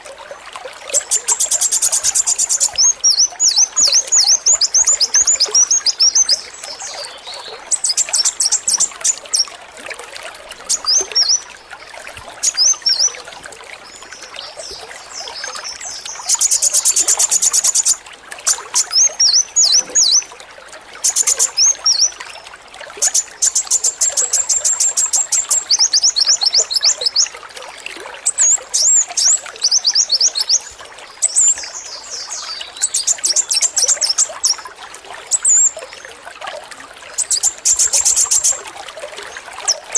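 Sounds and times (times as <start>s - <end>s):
water trickling: 0.0s - 39.9s
sunbird chirps and trills: 0.9s - 9.5s, 12.4s - 13.2s, 14.4s - 20.3s, 21.0s - 22.2s.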